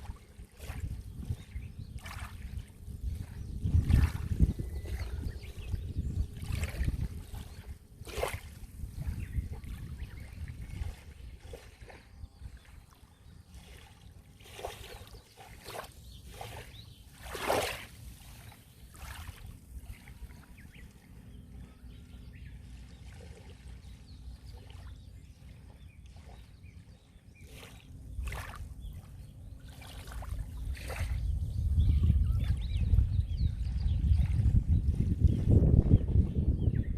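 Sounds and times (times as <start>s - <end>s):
wave splashes: 0.0s - 5.7s, 6.3s - 21.8s, 27.4s - 29.0s, 29.6s - 31.2s.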